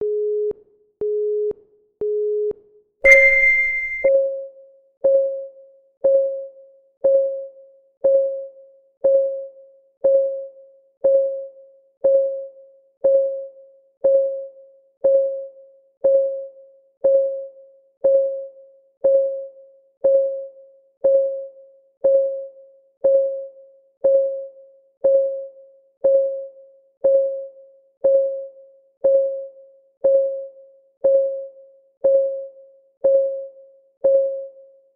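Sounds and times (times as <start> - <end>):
higher start beep: 3.1 - 4.1
short low beeps: 3.1 - 4.1
timer clock ticking: 3.1 - 4.1.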